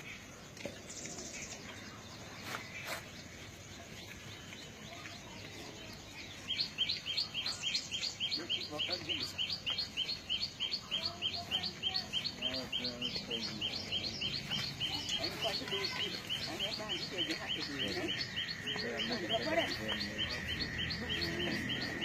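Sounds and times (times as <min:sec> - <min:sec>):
outdoor background noise: 0:00.0 - 0:22.0
bird chirping rapidly: 0:06.0 - 0:22.0.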